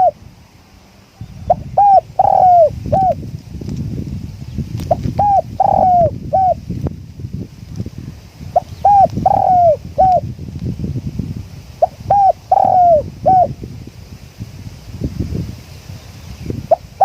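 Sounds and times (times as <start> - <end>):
dove cooing: 0.0 - 0.2, 1.3 - 3.2, 4.9 - 6.6, 8.5 - 10.2, 11.8 - 13.6, 16.7 - 17.0
wind buffeting microphone: 0.0 - 17.0.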